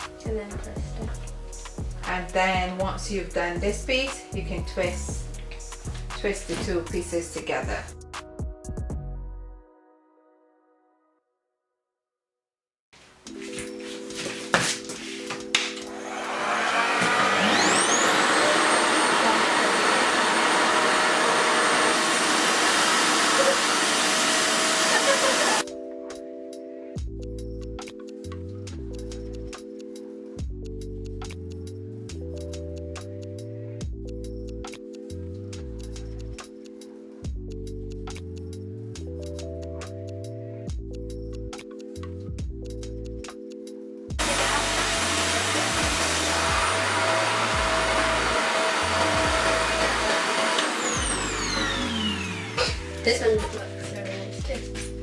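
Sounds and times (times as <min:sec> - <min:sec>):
background music: 0:00.0 - 0:11.2, 0:13.0 - 0:20.2, 0:25.2 - 0:55.0
hair dryer suction rush: 0:15.8 - 0:25.6, 0:44.2 - 0:53.1.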